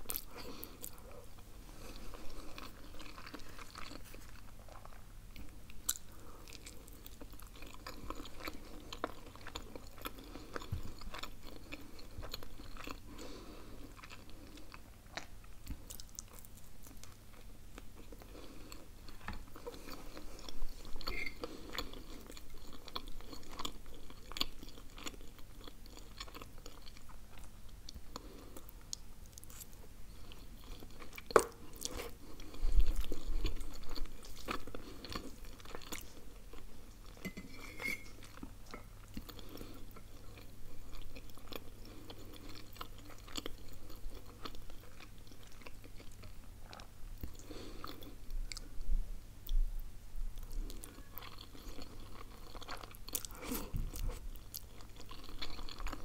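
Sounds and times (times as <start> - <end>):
person chewing food: 0.0 - 48.8, 50.4 - 56.0.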